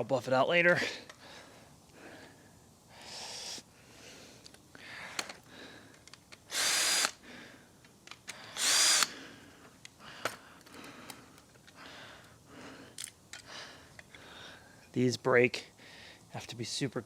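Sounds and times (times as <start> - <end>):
faint clicks and handling noise: 4.4 - 6.5, 7.8 - 8.5, 9.6 - 14.9
power drill whining: 6.5 - 7.2, 8.4 - 9.1.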